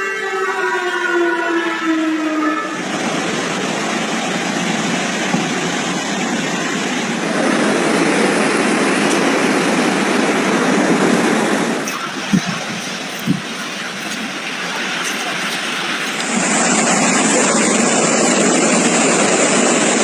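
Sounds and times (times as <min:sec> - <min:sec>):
river water rushing: 0:11.7 - 0:16.8.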